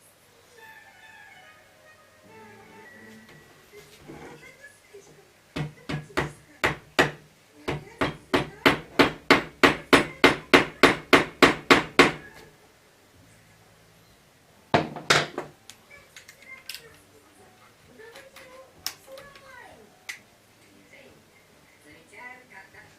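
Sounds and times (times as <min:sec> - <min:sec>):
hammer striking wood: 0:05.6 - 0:12.3, 0:14.8 - 0:15.5.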